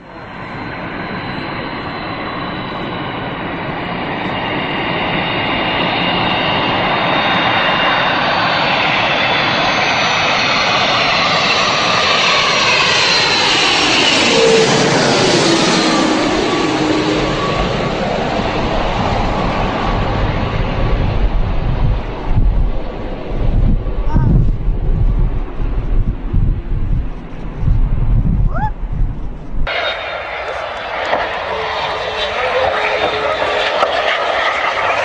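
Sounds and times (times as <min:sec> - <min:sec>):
high jet engine whine: 0:00.0 - 0:35.0
jet airliner engines: 0:00.0 - 0:35.0.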